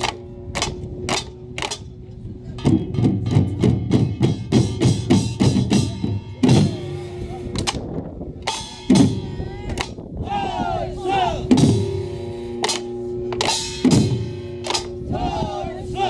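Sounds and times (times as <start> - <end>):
drums beating: 2.6 - 16.0.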